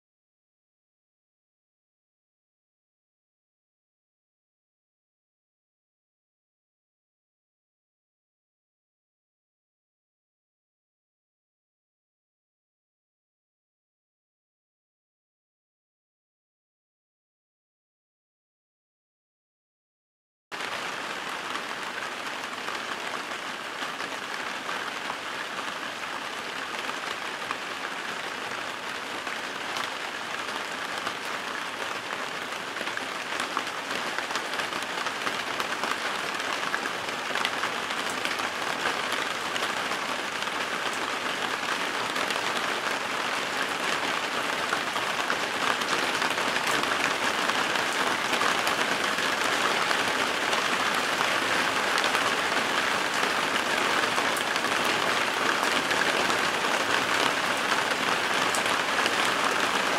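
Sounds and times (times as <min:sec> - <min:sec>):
steady rain falling: 0:20.6 - 0:59.9.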